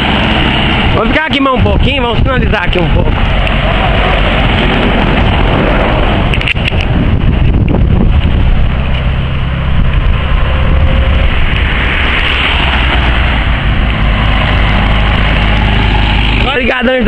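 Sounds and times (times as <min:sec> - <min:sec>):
vehicle engine rumbling: 0:00.0 - 0:17.0
wind noise on microphone: 0:00.0 - 0:17.0.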